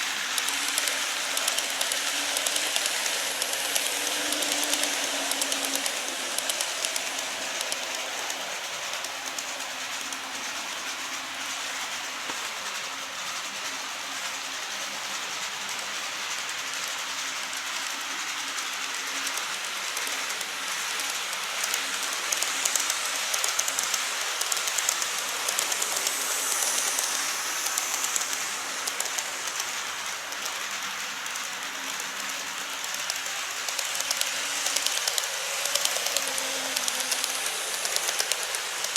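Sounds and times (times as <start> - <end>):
wheels clicking over rails: 0.0 - 12.9, 15.3 - 38.9
model train motor hum: 0.0 - 38.9.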